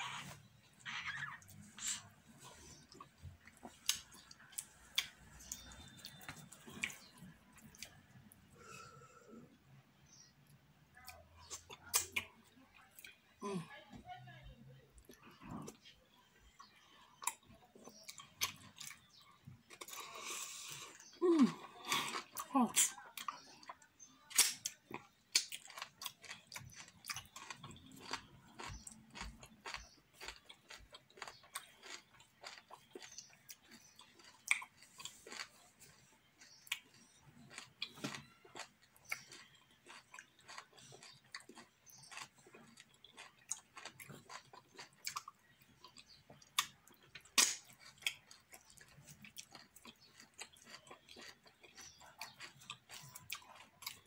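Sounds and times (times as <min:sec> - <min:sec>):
person chewing and smacking: 0:01.1 - 0:08.6, 0:10.5 - 0:13.2, 0:16.5 - 0:54.0.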